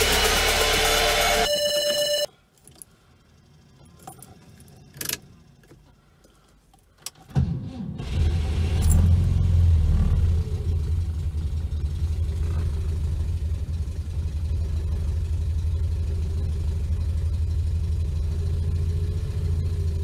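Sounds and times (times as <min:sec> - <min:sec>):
keys clicking in ignition: 0:02.5 - 0:02.9
car engine cranking and idling: 0:02.6 - 0:20.0.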